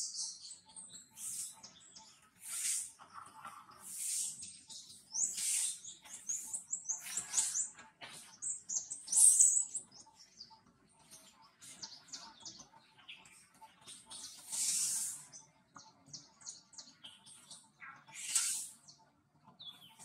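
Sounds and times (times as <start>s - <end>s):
birds chirping: 0.0s - 20.0s
harsh loud bird calls: 0.3s - 10.2s, 11.7s - 15.5s, 16.9s - 19.0s.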